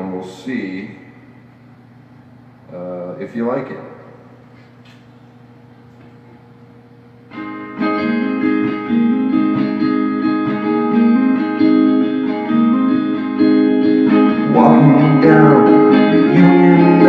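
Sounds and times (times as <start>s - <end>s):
solo guitar picking chords: 6.0s - 17.0s.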